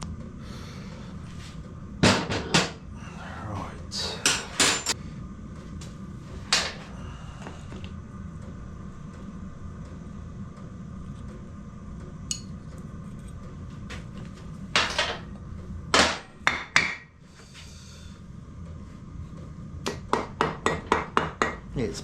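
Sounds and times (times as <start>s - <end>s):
hammer knocking on metal: 19.9s - 21.6s.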